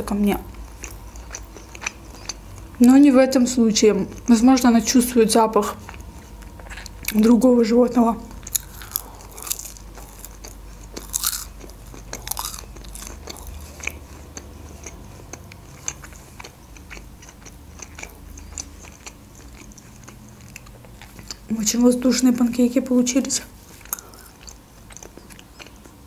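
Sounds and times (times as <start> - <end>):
person chewing food: 0.5 - 2.9, 5.8 - 7.3, 8.3 - 21.5, 23.5 - 26.0.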